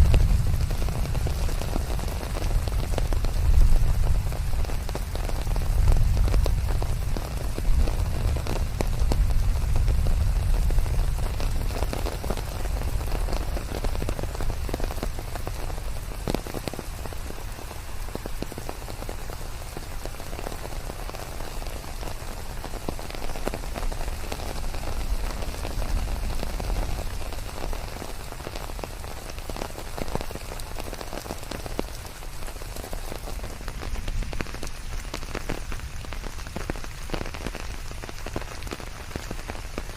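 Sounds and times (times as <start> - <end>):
deep low rumble: 0.0 - 4.3
rain pattering on leaves: 0.0 - 39.9.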